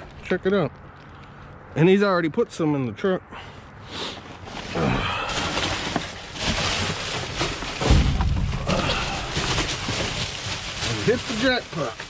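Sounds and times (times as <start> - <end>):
plastic bags rustling: 4.1 - 12.0
heavy low thump: 7.8 - 9.8.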